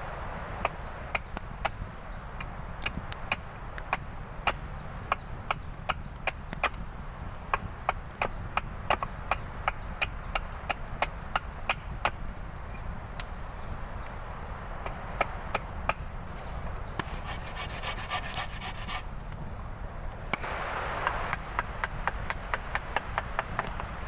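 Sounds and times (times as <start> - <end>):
wood rasping: 16.3 - 19.2
sharp wooden knocks: 17.0 - 19.0.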